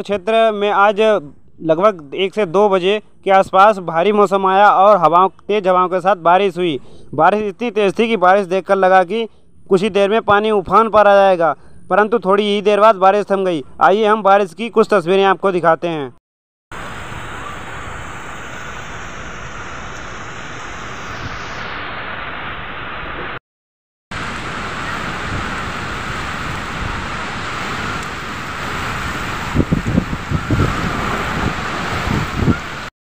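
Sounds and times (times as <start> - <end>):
wind gusts on microphone: 16.8 - 23.4, 24.2 - 32.9
heavy rain pouring: 24.1 - 32.9.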